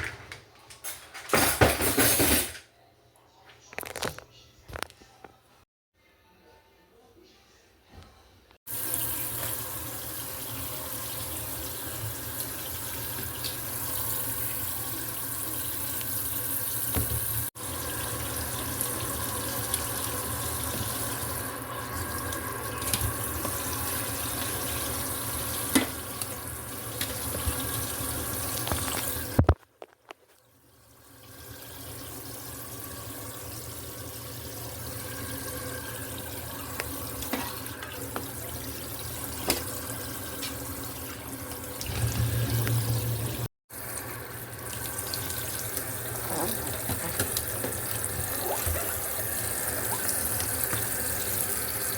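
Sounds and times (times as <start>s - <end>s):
tap running into sink: 16.8s - 17.4s.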